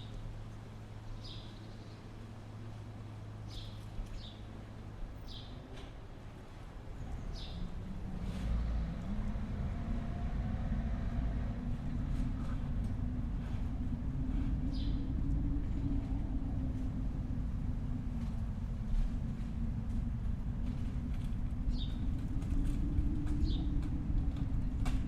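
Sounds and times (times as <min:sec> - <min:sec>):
low rumble: 0:06.2 - 0:25.0.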